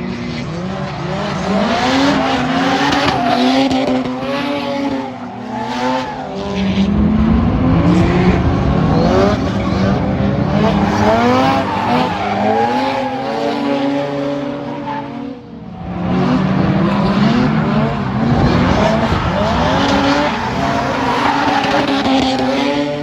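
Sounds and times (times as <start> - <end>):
car engine revving hard: 0.0 - 23.0
tyres squealing: 0.8 - 6.4, 10.7 - 14.0.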